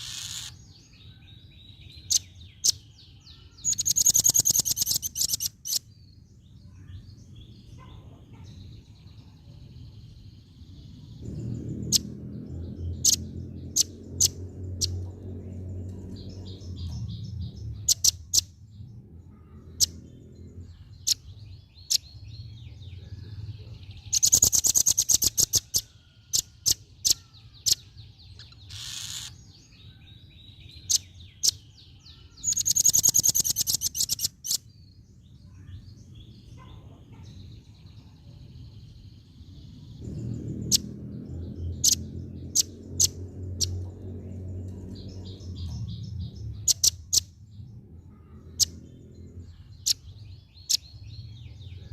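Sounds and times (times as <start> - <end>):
bird trilling: 0.0 - 0.7, 2.1 - 5.8, 24.1 - 29.5, 30.9 - 34.6, 45.1 - 47.3
low rumble: 10.7 - 18.0, 37.6 - 51.9.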